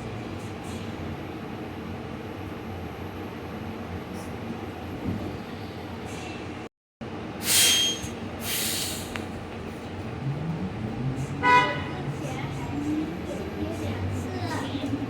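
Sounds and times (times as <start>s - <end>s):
air hiss bursts: 7.4s - 9.2s
bus cabin rumble: 8.4s - 15.0s.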